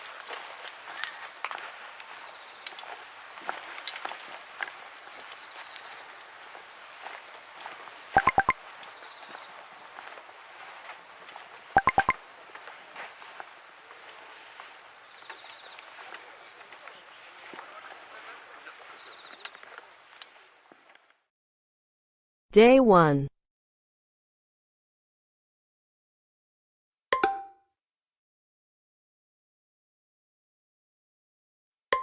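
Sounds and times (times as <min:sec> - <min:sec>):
insects chirping: 0:00.0 - 0:20.8
bursts of sharp clicks: 0:08.2 - 0:08.6, 0:11.8 - 0:12.2.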